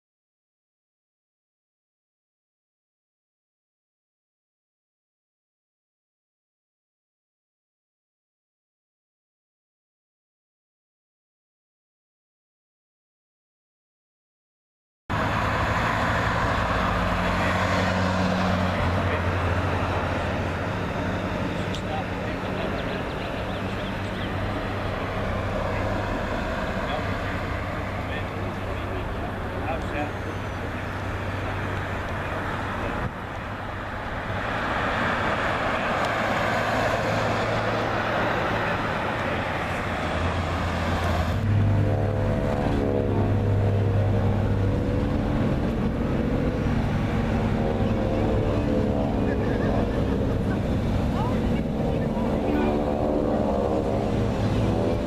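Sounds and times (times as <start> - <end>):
deep droning engine: 15.1 - 55.0
loud steady engine noise: 15.1 - 55.0.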